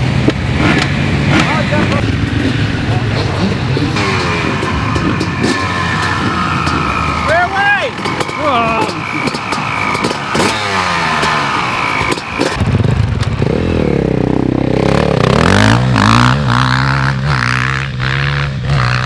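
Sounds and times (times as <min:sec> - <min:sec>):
motocross bikes revving: 0:00.0 - 0:19.0.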